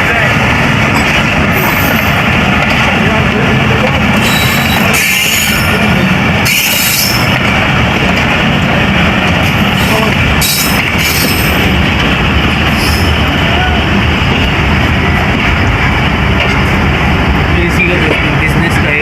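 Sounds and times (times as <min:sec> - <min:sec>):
train wheels rumbling: 0:00.0 - 0:19.0.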